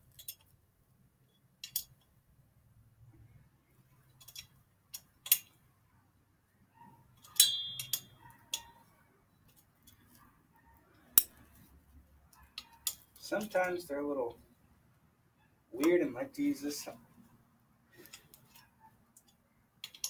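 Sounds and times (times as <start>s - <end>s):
metal hand tools clinking: 7.2s - 8.8s, 19.2s - 20.0s.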